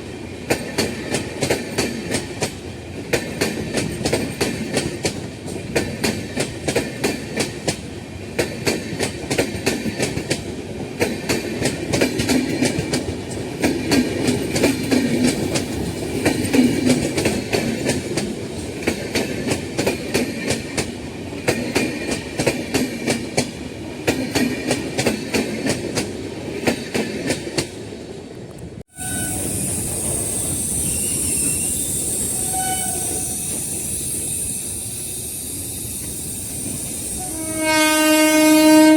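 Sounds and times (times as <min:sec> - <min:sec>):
train wheels clattering over rails: 0:00.4 - 0:27.8.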